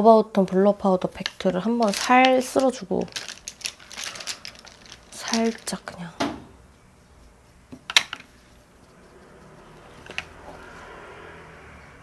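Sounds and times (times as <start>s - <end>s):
faint soft rubbing: 6.6s - 10.9s.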